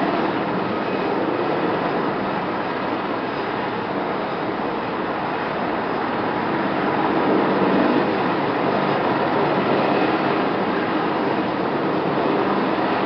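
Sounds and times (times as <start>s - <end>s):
helicopter engines and rotor: 0.0s - 13.0s.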